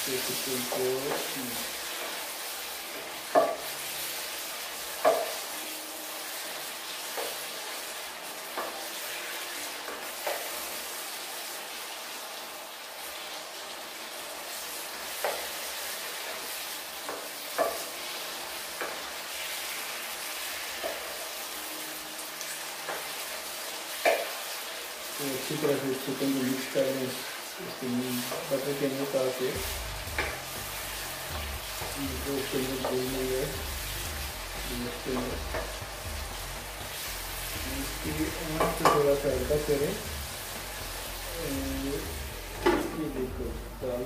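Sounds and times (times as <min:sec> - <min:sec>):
chicken sizzling in a pan: 0:00.0 - 0:44.0
wooden spatula knocking on pan: 0:03.3 - 0:03.7, 0:05.0 - 0:05.4, 0:30.1 - 0:30.4, 0:38.6 - 0:39.0.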